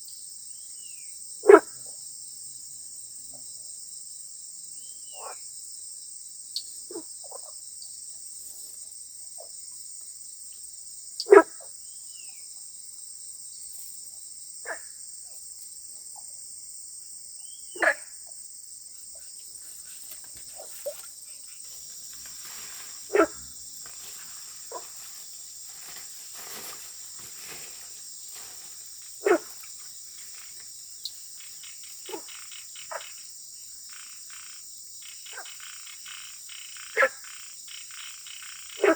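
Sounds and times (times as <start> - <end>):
high-pitched insect chorus: 0.0 - 38.9
frogs calling: 1.4 - 2.0, 4.9 - 5.5, 6.6 - 8.0, 11.2 - 12.6, 14.6 - 15.4, 17.4 - 38.9.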